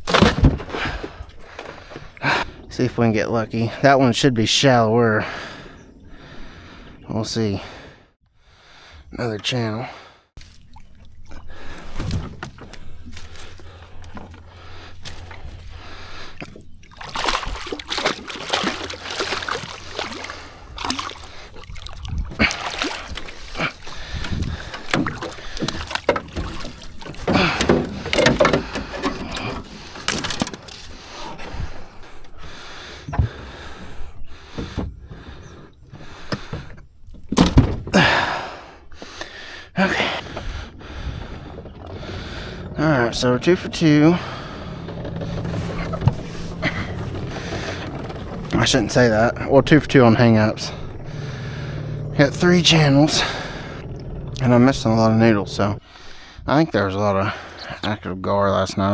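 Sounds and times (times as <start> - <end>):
water splashing and sloshing: 10.4 - 56.5.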